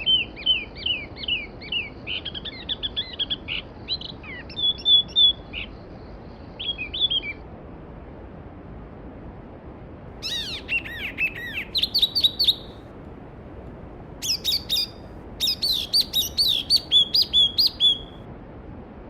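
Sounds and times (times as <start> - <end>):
songbird singing: 0.0 - 7.4, 10.2 - 12.9, 14.2 - 18.3.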